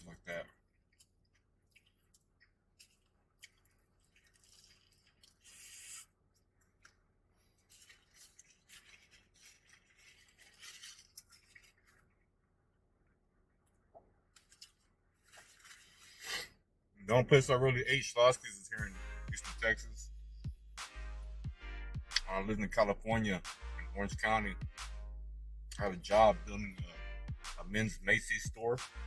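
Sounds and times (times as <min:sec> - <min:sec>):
soft crunching while eating: 0:00.0 - 0:16.7
wrapper rustling: 0:02.8 - 0:12.3, 0:14.4 - 0:16.3.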